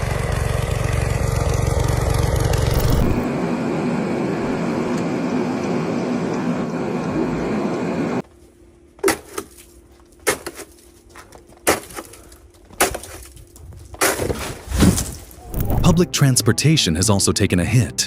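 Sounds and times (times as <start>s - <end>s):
steady rumble: 0.0s - 8.2s.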